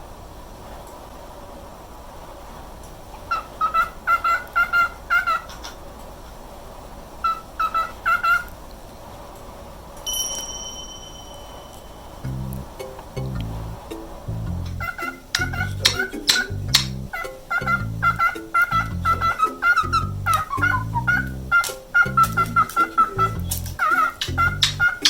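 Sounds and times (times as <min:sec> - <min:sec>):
cockatiel whistling: 0:14.7 - 0:25.0.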